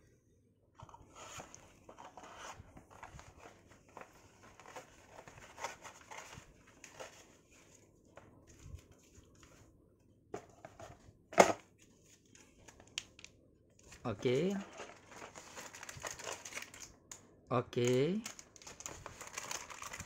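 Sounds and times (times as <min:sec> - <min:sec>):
packaging rustling and clicking: 0:00.8 - 0:07.3, 0:12.2 - 0:17.2, 0:17.8 - 0:20.0.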